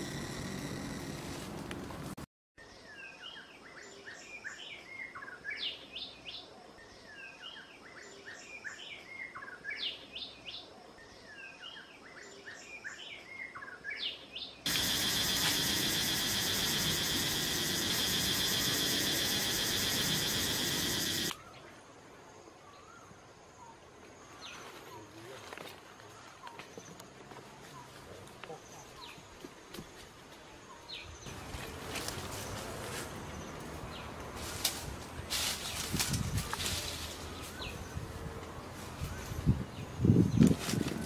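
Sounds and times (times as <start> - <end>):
buzzing insect drone: 0.0 - 1.7, 14.7 - 21.4.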